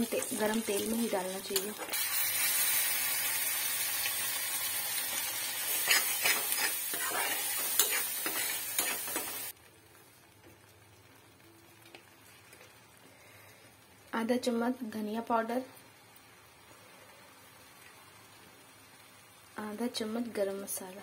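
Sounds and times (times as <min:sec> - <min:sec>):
paste sizzling in hot oil: 0:00.0 - 0:09.6
metal spatula scraping a pan: 0:05.5 - 0:09.5.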